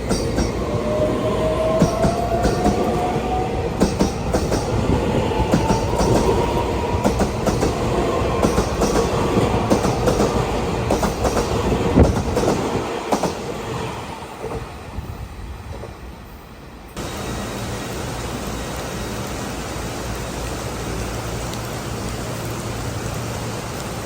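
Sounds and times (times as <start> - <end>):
train rumbling on track: 0.0 - 24.0
wheels clicking over rail joints: 1.6 - 13.4.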